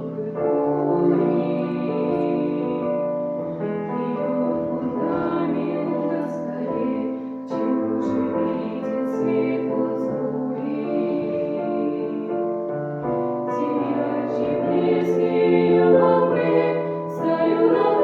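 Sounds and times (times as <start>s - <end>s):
piano accompaniment: 0.0s - 18.0s.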